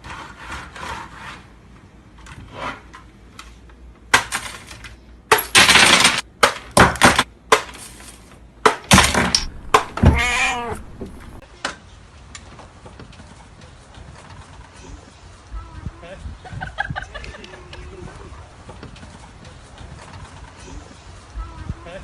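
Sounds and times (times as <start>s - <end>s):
clattering knocks and crashes: 4.2s - 11.4s.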